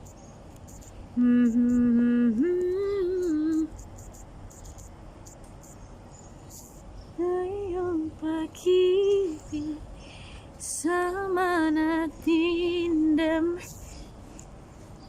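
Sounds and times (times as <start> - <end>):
faint steady hiss: 0.0 - 15.0
woman singing with vibrato: 1.2 - 3.8, 7.2 - 9.9, 10.6 - 13.9.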